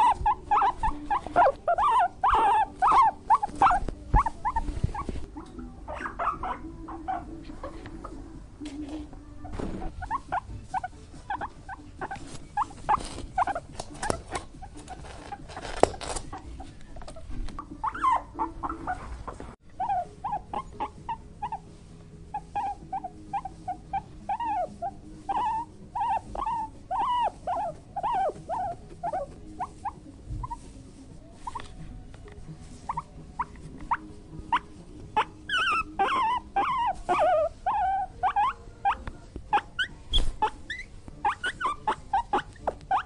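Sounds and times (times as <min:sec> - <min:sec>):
rustling and clicking: 0:00.0 - 0:05.6, 0:07.4 - 0:17.8
bear cub squeaky calls: 0:00.0 - 0:07.4, 0:22.3 - 0:30.6, 0:32.9 - 0:43.0.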